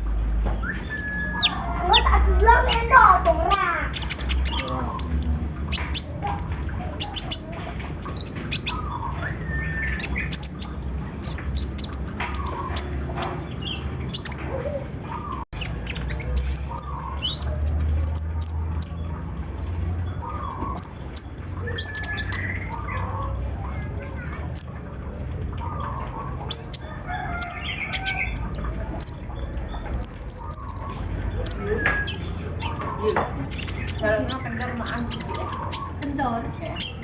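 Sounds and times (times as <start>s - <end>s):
bird chirping: 0.0s - 37.0s.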